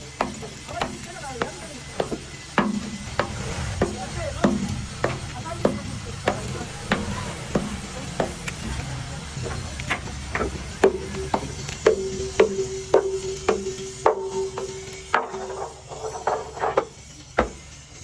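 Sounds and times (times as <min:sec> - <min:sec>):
hammer blows on metal: 0:00.0 - 0:17.9.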